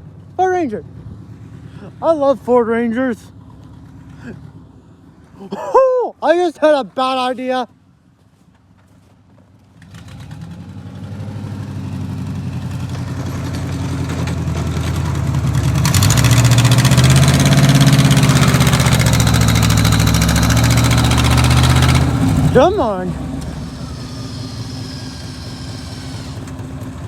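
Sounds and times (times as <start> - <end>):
vehicle engine revving: 9.8 - 27.0.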